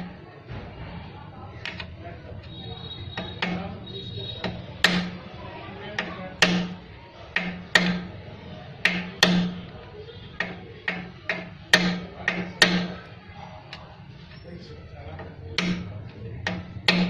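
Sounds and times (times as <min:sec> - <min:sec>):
sharp knocks: 0:03.1 - 0:03.8, 0:04.4 - 0:05.2, 0:06.0 - 0:06.8, 0:07.4 - 0:08.2, 0:08.8 - 0:09.7, 0:10.4 - 0:13.0, 0:15.2 - 0:17.0.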